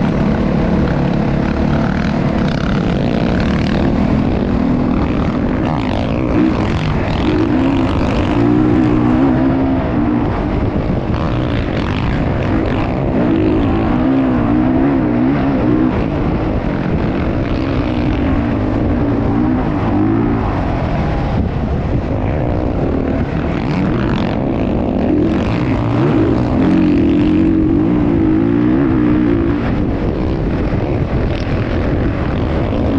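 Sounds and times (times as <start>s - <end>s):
dirt bike engines revving: 0.0s - 32.9s.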